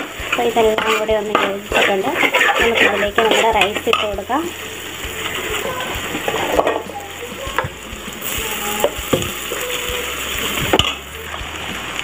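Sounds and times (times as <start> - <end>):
steel spoon scraping a pan: 0.0 - 6.9
vegetables sizzling in a pan: 0.0 - 12.0.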